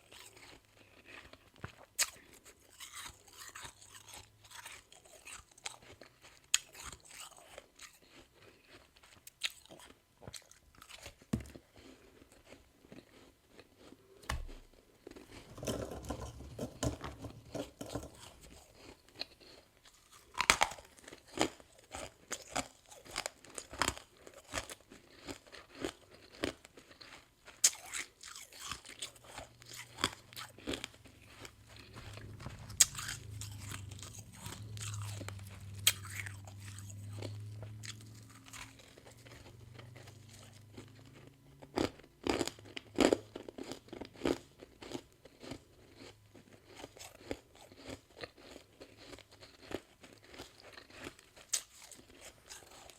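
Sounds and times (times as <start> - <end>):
crisp crunches of chewing frost: 0.0 - 14.2, 17.4 - 52.9
low steady hum: 29.0 - 41.6.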